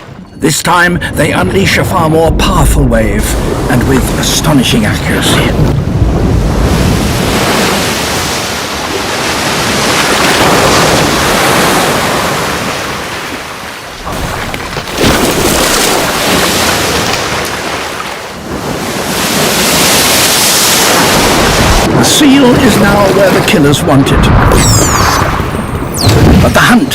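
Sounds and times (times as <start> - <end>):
water splash: 2.9 - 23.6
seawater rushing over ice: 6.4 - 23.5.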